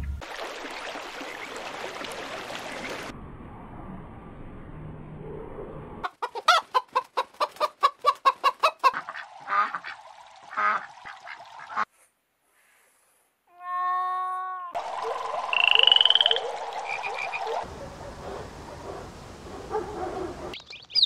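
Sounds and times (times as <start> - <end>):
poultry clucking calls: 6.0 - 9.9
low steady hiss: 16.4 - 20.5.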